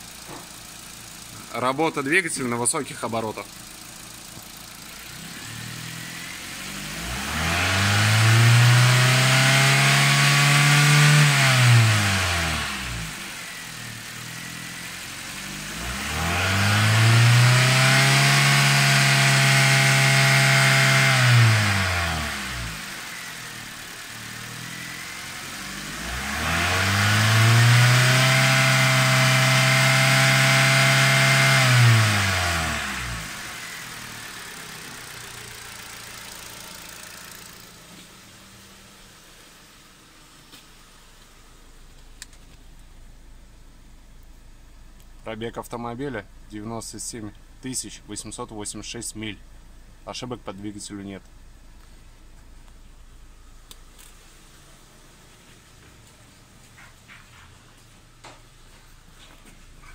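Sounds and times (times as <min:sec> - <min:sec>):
car engine revving: 0:00.0 - 0:41.7.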